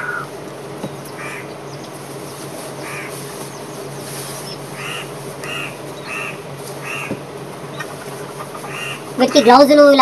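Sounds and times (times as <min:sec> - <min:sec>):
short bird calls: 0:00.0 - 0:00.4, 0:01.1 - 0:01.9, 0:02.8 - 0:09.1
background hiss and hum: 0:00.0 - 0:10.0.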